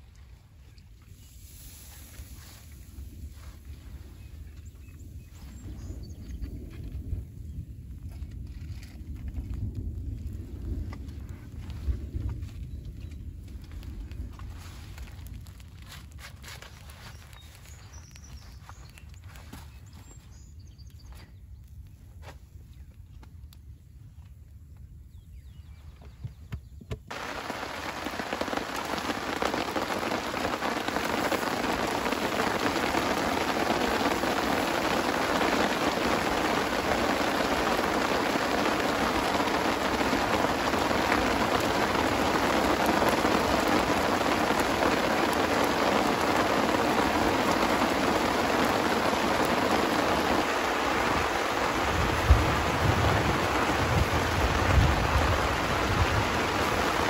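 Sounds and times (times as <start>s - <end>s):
heavy rain falling: 27.1s - 57.0s.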